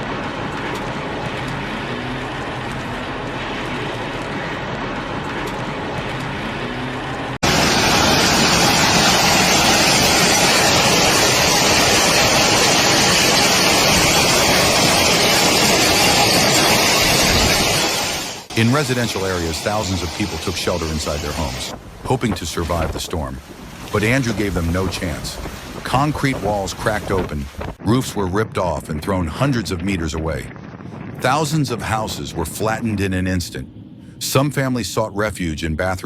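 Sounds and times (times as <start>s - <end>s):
rain: 0.0s - 27.8s
storm wind: 0.0s - 36.0s.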